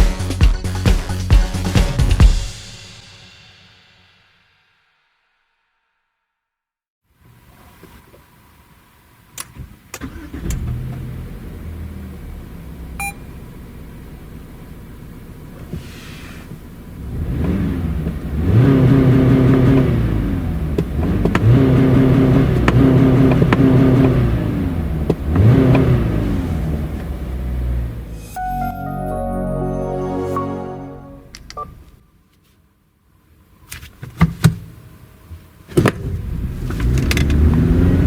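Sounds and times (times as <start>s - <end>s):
car engine idling and revving: 9.5s - 28.2s, 34.9s - 38.0s
short beep: 28.2s - 32.0s.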